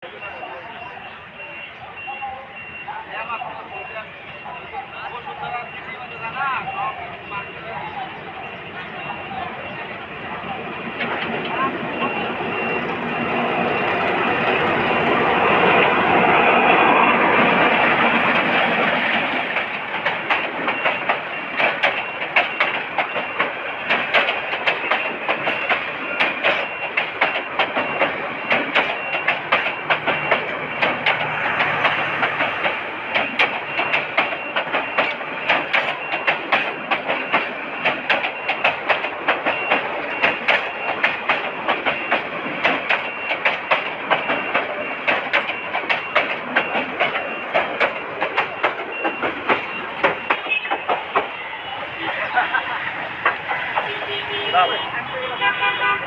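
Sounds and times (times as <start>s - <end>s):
train rumbling: 0.0s - 56.0s
train wheels clattering: 8.8s - 54.8s.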